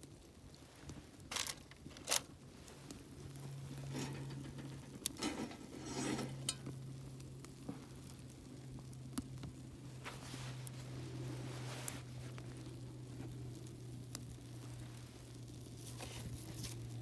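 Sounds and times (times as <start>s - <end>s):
steady low hum: 1.3s - 17.0s
short scraping sounds: 3.8s - 6.6s.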